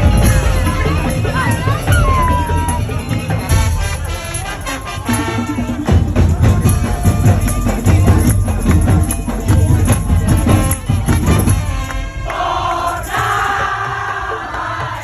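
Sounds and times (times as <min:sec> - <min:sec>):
melody over percussion: 0:00.0 - 0:13.6
heavy drum beats: 0:00.0 - 0:15.0
jingling percussion: 0:00.0 - 0:15.0.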